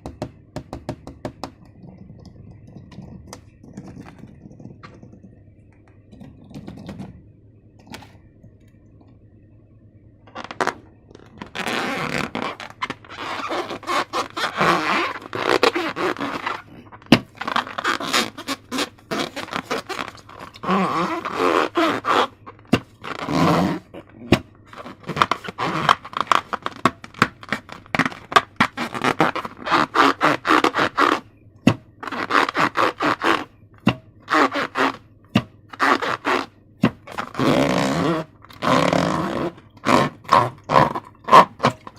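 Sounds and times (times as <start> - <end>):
slime scraping and rubbing: 10.3 - 31.3, 32.0 - 33.5, 34.3 - 35.0, 35.7 - 41.9.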